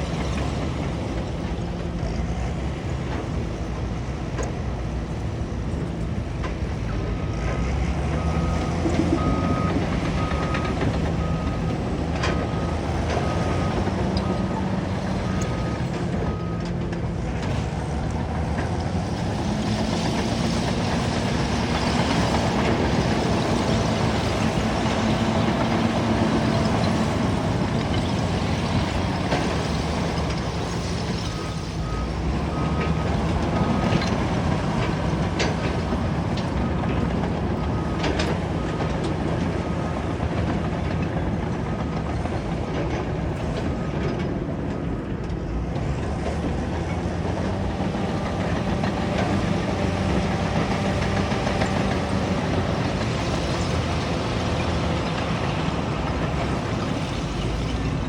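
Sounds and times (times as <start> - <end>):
bulldozer diesel engine working: 0.0 - 58.0
reversing alarm beeping: 6.8 - 16.8, 19.3 - 42.8.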